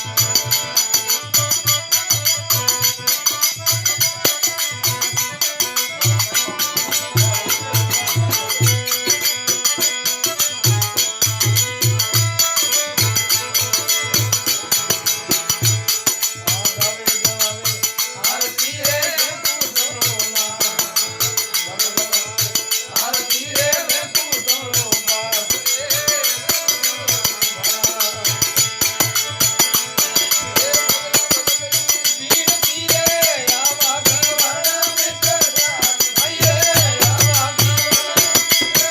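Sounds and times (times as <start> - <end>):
jingling percussion: 0.0 - 38.9
pulsing drum beat: 0.0 - 38.9.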